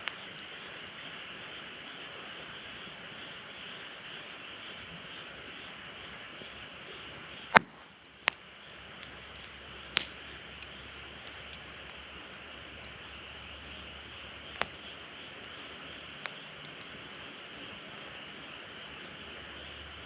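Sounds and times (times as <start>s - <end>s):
fire popping: 0.0s - 20.0s
wood fire hissing: 0.0s - 20.0s.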